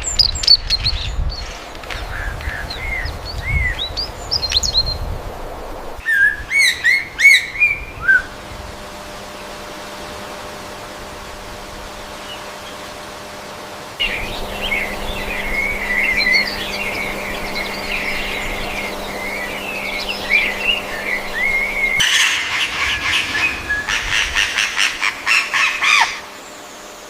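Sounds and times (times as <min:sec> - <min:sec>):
bird warbling song: 0:00.0 - 0:05.2, 0:06.0 - 0:08.6, 0:14.0 - 0:27.0
low steady hum: 0:00.0 - 0:27.0
bird rapid repeated calls: 0:06.0 - 0:08.4, 0:14.0 - 0:26.8.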